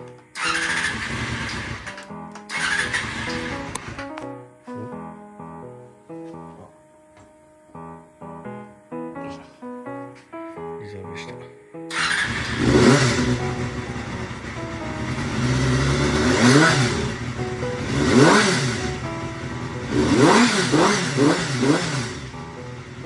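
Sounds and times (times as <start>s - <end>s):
motorcycle engine revving: 0.4s - 4.0s, 11.9s - 23.0s.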